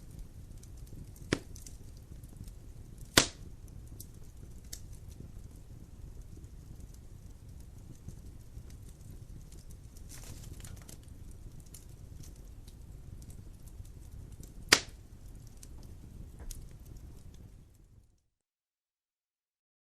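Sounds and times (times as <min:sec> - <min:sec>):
wood fire crackling: 0:00.0 - 0:18.3
loud sharp pop of fire: 0:00.8 - 0:05.2, 0:14.0 - 0:16.6.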